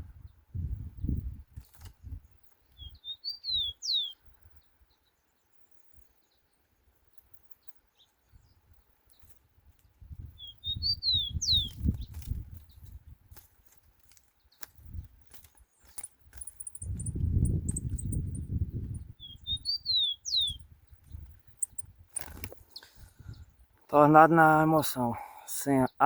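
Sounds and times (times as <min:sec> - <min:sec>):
sparrow singing whistled notes: 0:02.1 - 0:04.2, 0:10.2 - 0:12.9, 0:15.9 - 0:21.9.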